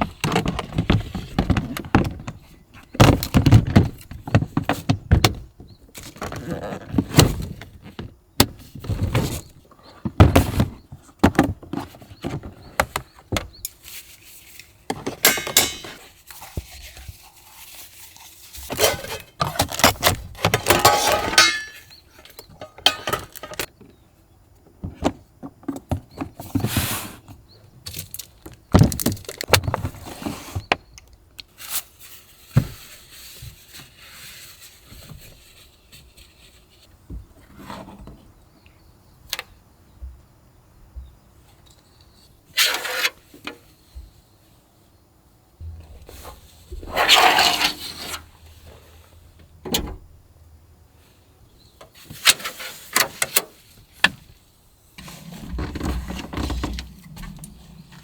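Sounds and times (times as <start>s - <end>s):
objects knocking and clattering: 14.9s - 16.1s, 18.7s - 23.8s
squeaking scrape: 45.7s - 48.8s, 55.0s - 58.0s.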